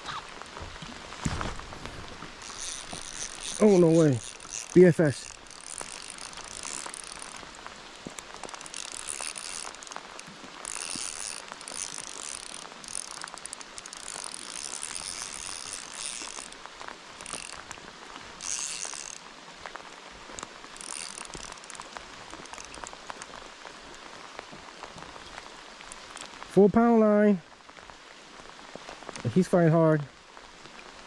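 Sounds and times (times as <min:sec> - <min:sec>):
light rain pattering: 0:00.0 - 0:31.0
fishing reel drag buzzing: 0:01.8 - 0:19.2, 0:20.3 - 0:23.4.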